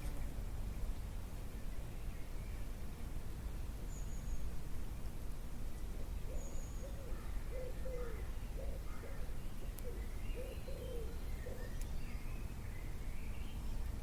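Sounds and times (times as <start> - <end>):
faint high bird chirp: 6.2 - 13.8.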